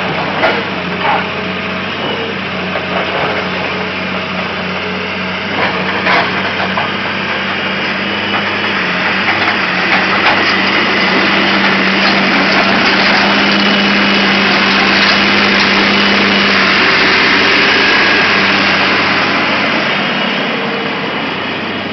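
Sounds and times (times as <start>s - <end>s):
excavator engine running: 0.0s - 21.9s.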